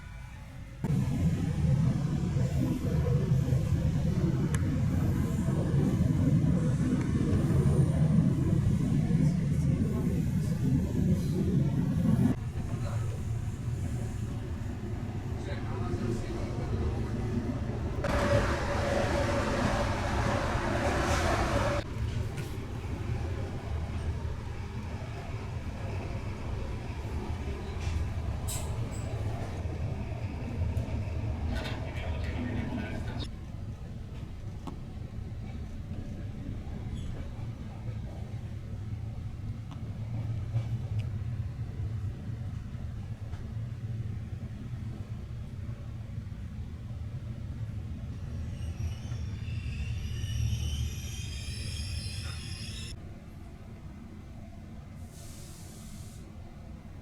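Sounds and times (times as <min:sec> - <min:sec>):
train rumbling: 0:00.0 - 0:57.0
high squeal: 0:48.2 - 0:53.0
high hiss: 0:55.0 - 0:56.4.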